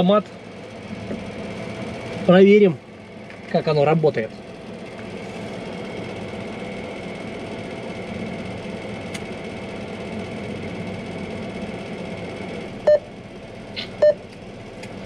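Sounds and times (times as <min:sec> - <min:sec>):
car engine idling: 0:00.0 - 0:15.0
keypad beep: 0:14.0 - 0:14.2.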